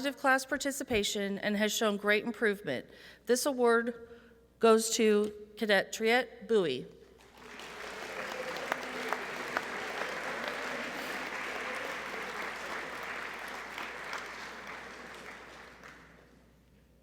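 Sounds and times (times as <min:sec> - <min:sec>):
audience applauding: 0:07.2 - 0:16.4
sharp individual claps: 0:07.2 - 0:16.4.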